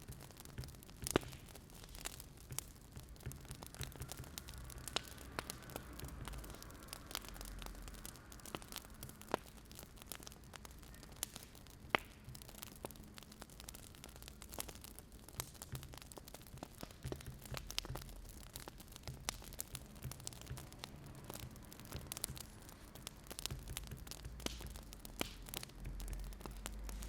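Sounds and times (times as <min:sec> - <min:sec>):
firewood crackling and popping: 0:00.0 - 0:27.0.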